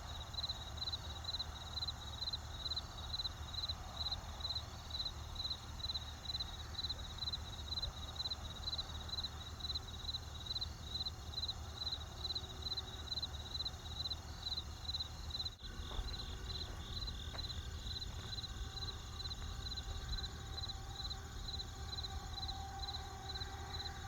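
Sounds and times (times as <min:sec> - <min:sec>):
crickets chirping: 0:00.0 - 0:24.0
low steady rumble: 0:15.1 - 0:24.0
campfire crackling: 0:15.6 - 0:22.2.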